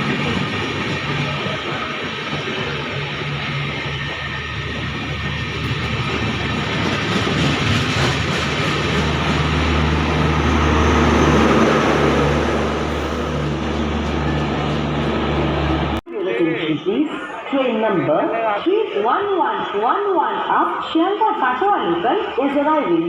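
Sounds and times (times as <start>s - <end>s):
electric train running past: 0.0s - 16.0s.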